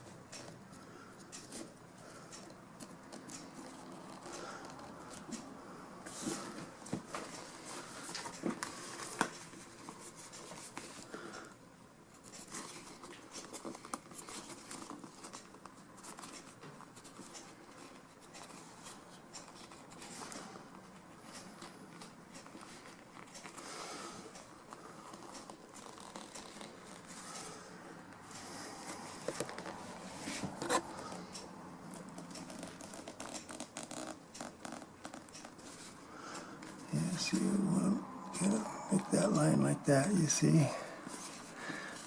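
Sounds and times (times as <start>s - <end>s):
fabric rustling and scratching: 25.0s - 27.6s, 32.0s - 36.0s.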